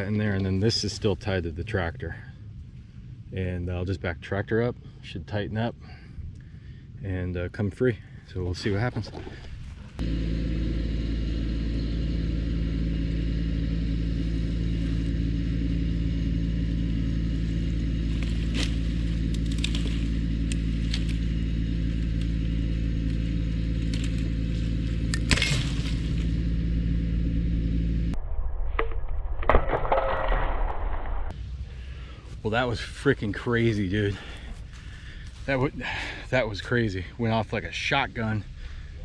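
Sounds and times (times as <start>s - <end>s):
diesel tractor engine running: 9.2s - 28.2s, 31.3s - 39.0s
rope snapping with a loud crack: 23.8s - 26.4s.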